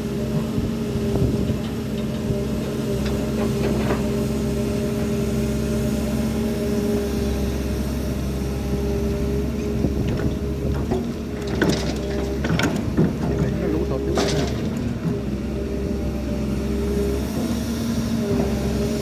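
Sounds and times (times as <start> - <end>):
diesel machinery engine running: 0.0 - 19.0.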